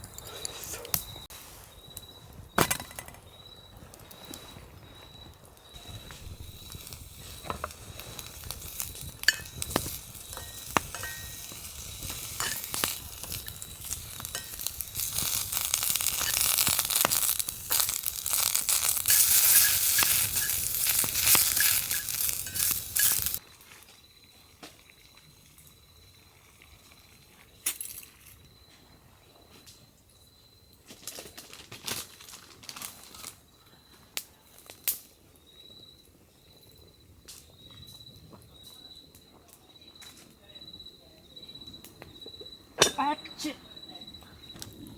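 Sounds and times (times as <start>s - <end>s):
crickets chirping: 0.0s - 44.9s
food frying crackling: 5.6s - 23.4s.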